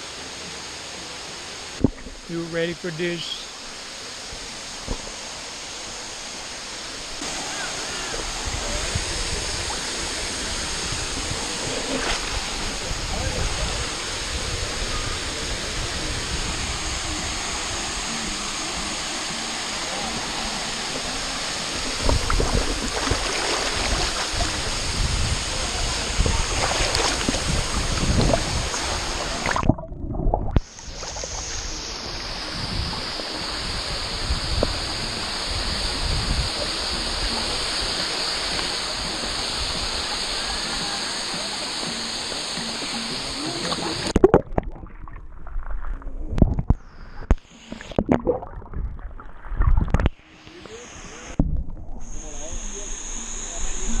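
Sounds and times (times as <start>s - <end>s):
waterfall rushing: 0.0s - 44.3s, 50.1s - 51.4s
water splashing and gurgling: 3.4s - 52.6s
wind buffeting microphone: 8.2s - 18.1s, 21.7s - 37.9s, 48.4s - 50.1s.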